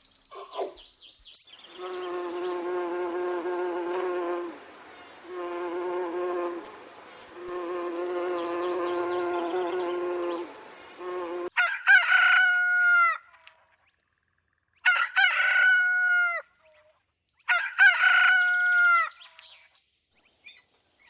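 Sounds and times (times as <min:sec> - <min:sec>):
flying insect buzzing: 0:01.7 - 0:11.5.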